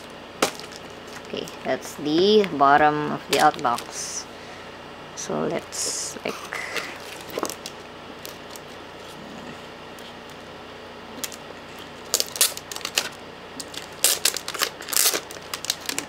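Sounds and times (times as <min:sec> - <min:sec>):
plastic packaging crinkling: 0:00.0 - 0:02.5, 0:03.2 - 0:04.2, 0:06.7 - 0:09.2, 0:11.2 - 0:16.0.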